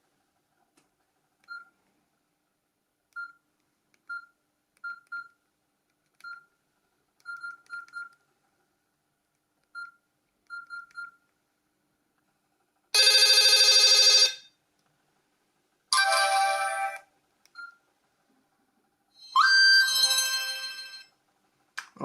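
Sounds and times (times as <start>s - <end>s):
phone keypad beeps: 9.8s - 11.2s.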